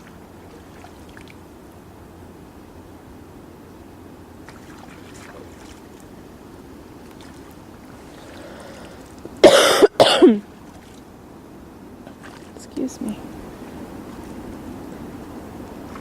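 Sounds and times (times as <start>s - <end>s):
faint outdoor background: 0.0s - 16.0s
person coughing loudly: 9.4s - 10.4s.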